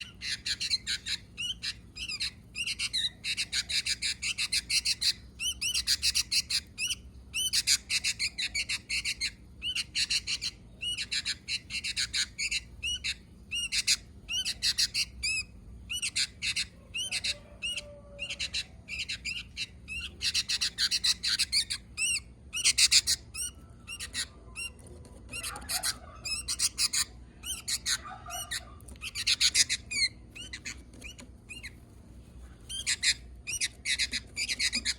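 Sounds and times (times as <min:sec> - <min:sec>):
bulbul chattering calls: 0:00.0 - 0:31.8, 0:32.7 - 0:34.9.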